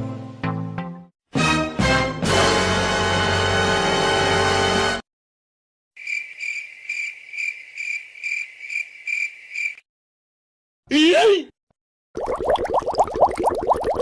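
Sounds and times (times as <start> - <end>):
music: 0.0 - 5.0
cricket chirping: 6.0 - 9.8.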